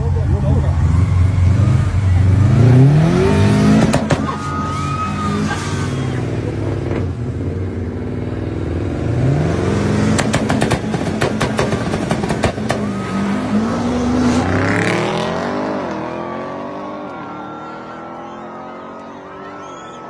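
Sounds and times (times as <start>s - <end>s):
racing car engine revving: 0.1s - 20.0s
sharp pops: 10.1s - 12.9s.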